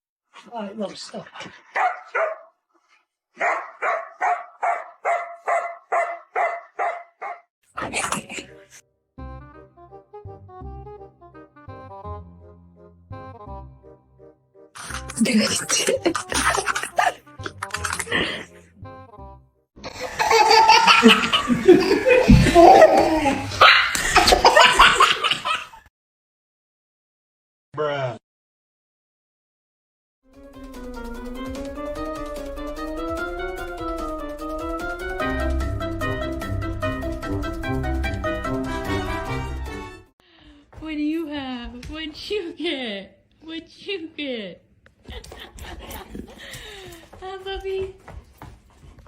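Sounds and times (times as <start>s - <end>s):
dog barking rhythmically: 1.7s - 2.5s, 3.4s - 7.4s, 15.3s - 17.2s.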